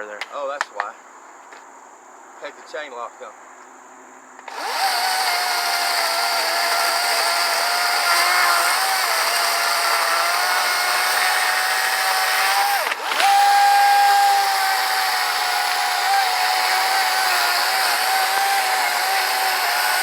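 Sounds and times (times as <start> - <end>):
electric chainsaw motor whine: 4.4 - 20.0.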